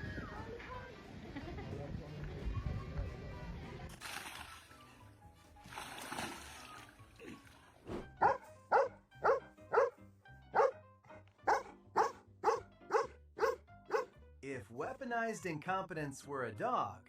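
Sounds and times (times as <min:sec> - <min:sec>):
background music: 0:00.0 - 0:17.0
dog barking: 0:08.2 - 0:10.8, 0:11.4 - 0:14.1.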